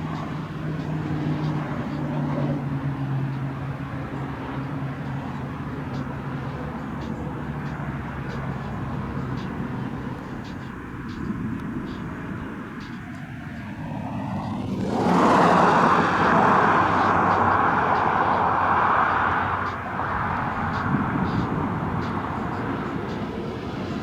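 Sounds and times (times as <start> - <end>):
light rail train humming: 0.0 - 24.0
train rushing past: 13.8 - 24.0.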